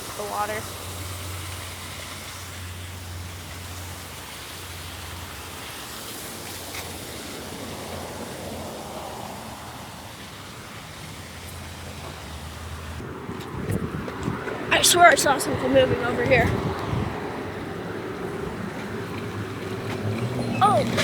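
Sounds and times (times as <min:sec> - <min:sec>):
waterfall splashing: 0:00.0 - 0:13.0, 0:20.5 - 0:21.0.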